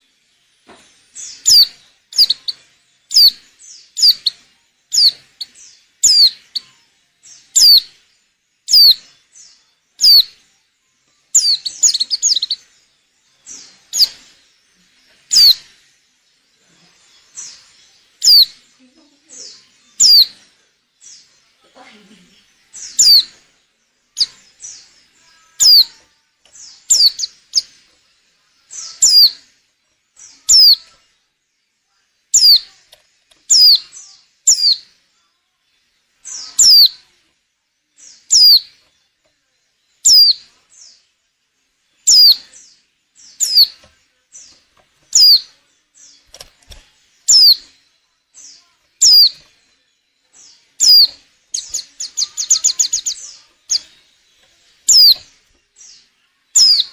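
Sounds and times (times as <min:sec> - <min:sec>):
bird chirps sliding down: 0:11.4 - 0:12.6, 0:25.6 - 0:25.9, 0:26.8 - 0:27.7, 0:42.1 - 0:42.4, 0:43.4 - 0:43.9, 0:44.5 - 0:45.5, 0:46.2 - 0:47.7, 0:49.0 - 0:49.5, 0:50.8 - 0:54.0, 0:54.8 - 0:55.3.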